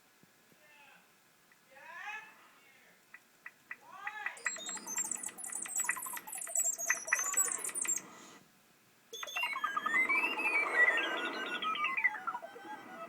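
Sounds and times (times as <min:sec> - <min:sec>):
synthesized bird-chirp notes: 0:04.4 - 0:08.3, 0:09.2 - 0:13.0.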